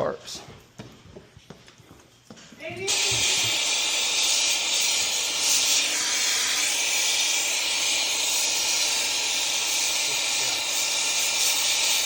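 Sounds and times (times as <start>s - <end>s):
gas hissing under pressure: 2.8s - 12.0s.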